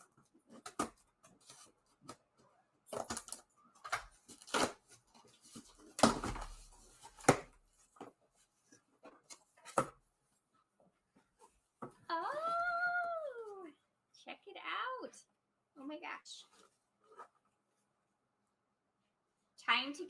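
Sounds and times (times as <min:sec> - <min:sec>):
packaging clicks and scrapes: 0:02.9 - 0:08.0
packaging rustling: 0:02.9 - 0:09.9.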